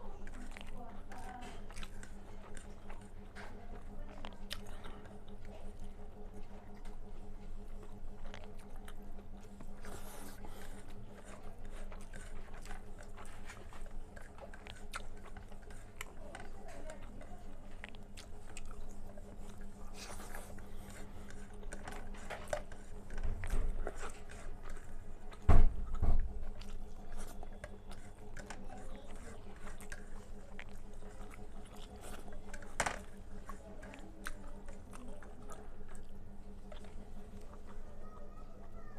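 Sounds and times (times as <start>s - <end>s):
person chewing food: 0.0s - 38.7s
faint steady hum: 0.0s - 38.9s.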